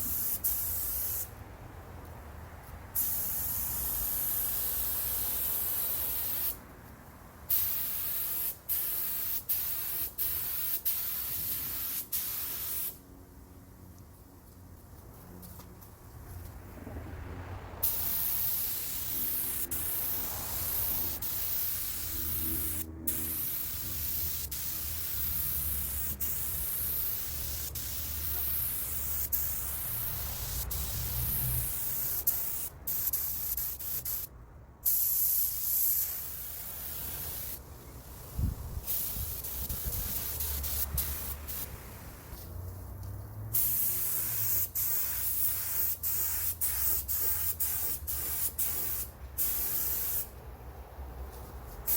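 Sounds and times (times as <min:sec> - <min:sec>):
paint spray gun hissing: 0:03.0 - 0:06.6, 0:07.5 - 0:13.0, 0:17.8 - 0:34.3, 0:34.9 - 0:38.2, 0:38.8 - 0:42.4, 0:43.6 - 0:50.3.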